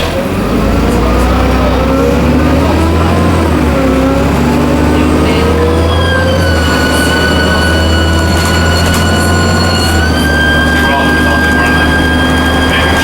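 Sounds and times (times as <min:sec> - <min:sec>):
bus diesel engine running: 0:00.0 - 0:13.0
turbocharger whine: 0:00.2 - 0:13.0.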